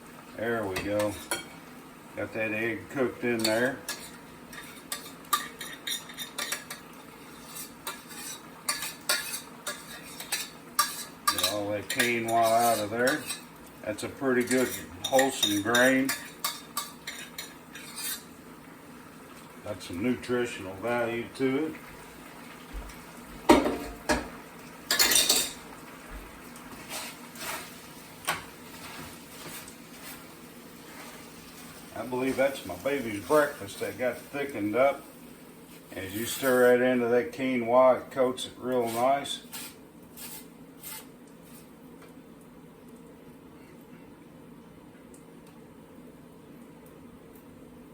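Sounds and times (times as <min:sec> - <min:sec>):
spoon scraping a pan: 0:00.7 - 0:01.7, 0:02.9 - 0:13.6, 0:14.2 - 0:18.4, 0:24.9 - 0:25.7, 0:26.7 - 0:34.7, 0:35.7 - 0:36.7, 0:38.7 - 0:41.7.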